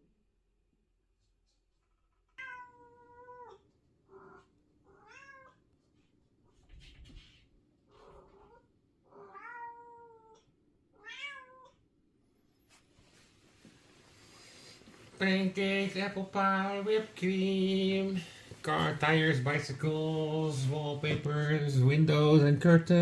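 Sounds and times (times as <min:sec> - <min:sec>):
cat meowing: 0:02.3 - 0:05.6, 0:08.0 - 0:11.8.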